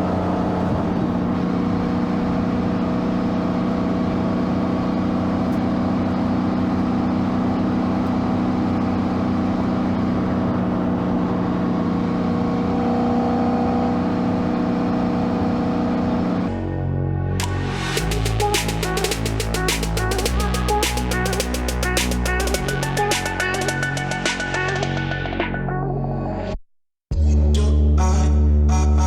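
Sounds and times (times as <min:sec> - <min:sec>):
car engine running steadily: 0:00.0 - 0:16.6, 0:17.4 - 0:23.7.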